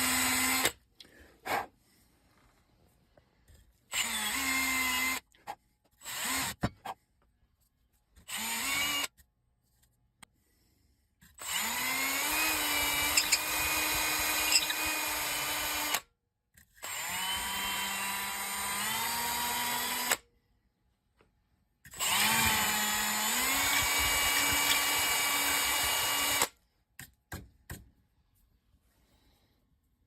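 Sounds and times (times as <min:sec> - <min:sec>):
electric power tool motor: 0:11.4 - 0:16.0, 0:21.9 - 0:26.5.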